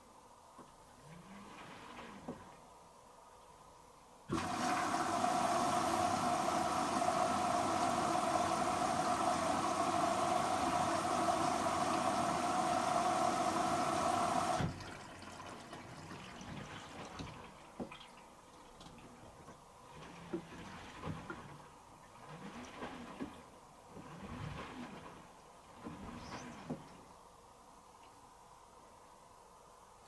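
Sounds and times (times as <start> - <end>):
water trickling: 4.3 - 23.2
water rushing into machine: 4.3 - 27.1.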